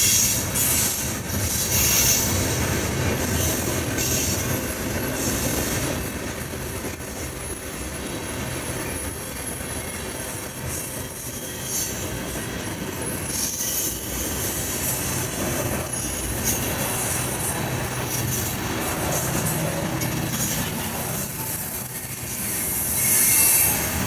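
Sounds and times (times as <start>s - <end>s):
railroad cars rumbling past: 0.0s - 24.0s
high-pitched wheel squeals: 13.0s - 17.1s, 22.4s - 24.0s.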